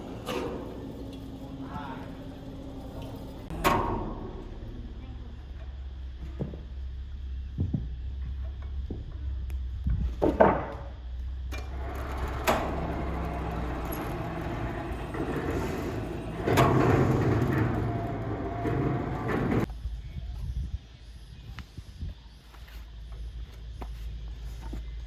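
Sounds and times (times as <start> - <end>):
low motor hum: 0.0 - 20.0.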